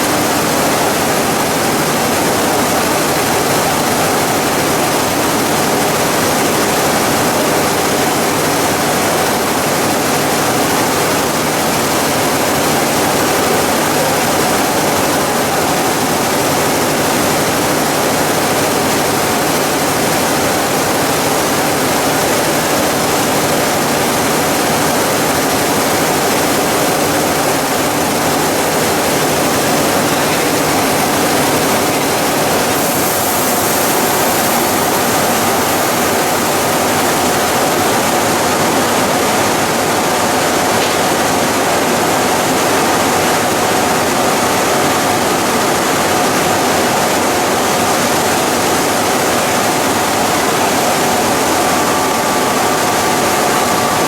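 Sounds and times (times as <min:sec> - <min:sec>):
machinery hissing: 0:00.0 - 0:41.8
high-pitched hiss: 0:27.4 - 0:38.0.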